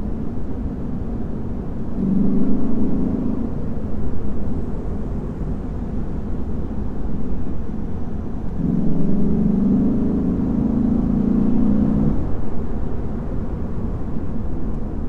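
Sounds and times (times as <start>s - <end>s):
car engine accelerating: 1.5s - 15.0s.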